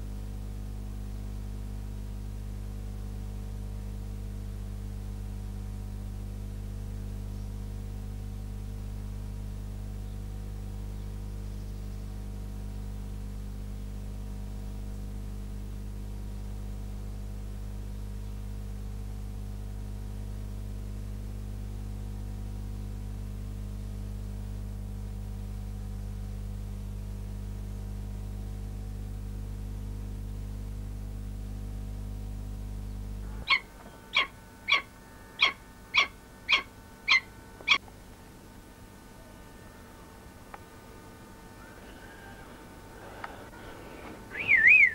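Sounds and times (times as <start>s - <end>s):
steady low hum: 0.0s - 44.9s
falcon calling: 33.4s - 37.8s, 41.6s - 44.9s.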